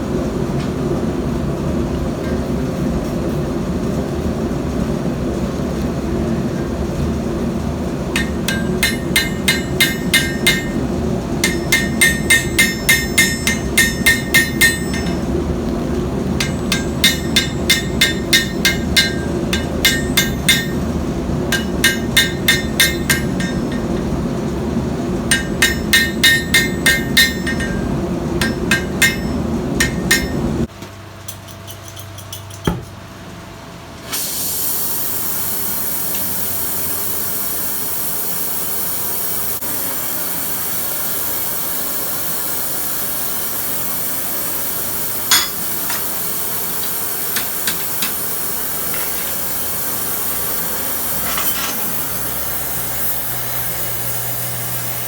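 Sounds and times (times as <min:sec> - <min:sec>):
steady low hum: 0:00.0 - 0:33.6
hammer striking steel on anvil: 0:08.1 - 0:15.4, 0:16.4 - 0:24.2, 0:25.2 - 0:30.7, 0:45.2 - 0:46.2, 0:47.3 - 0:48.2
steady hiss: 0:34.1 - 0:55.0.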